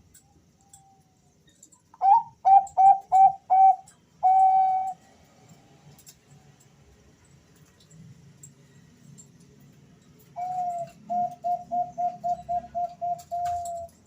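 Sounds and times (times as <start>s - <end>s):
dove cooing: 2.0s - 5.1s, 10.4s - 14.0s.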